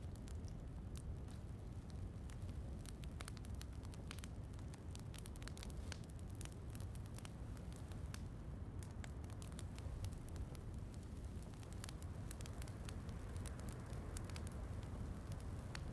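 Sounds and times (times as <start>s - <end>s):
wood fire crackling: 0.0s - 15.9s.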